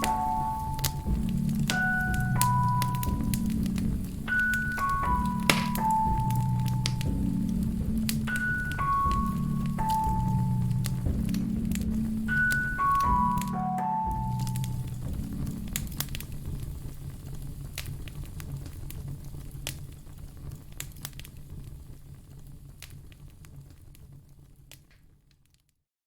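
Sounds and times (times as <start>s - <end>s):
low steady rumble: 0.0s - 13.4s, 14.1s - 24.6s
sharp pops: 0.0s - 13.6s
wood fire crackling: 0.0s - 25.7s.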